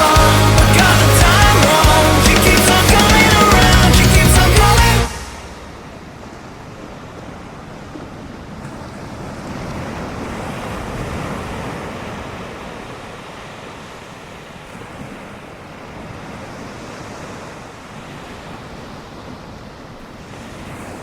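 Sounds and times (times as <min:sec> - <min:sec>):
ocean surf washing on beach: 0:05.1 - 0:21.0.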